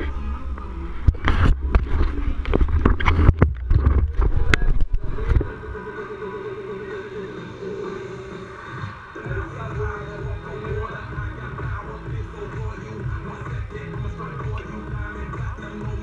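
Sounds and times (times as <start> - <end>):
wind rumble on microphone: 0.0 - 6.0.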